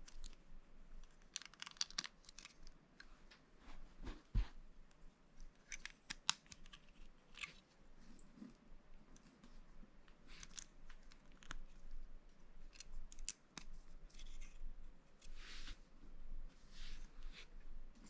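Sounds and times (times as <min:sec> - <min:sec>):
plastic pieces clicking together: 0:01.1 - 0:02.7.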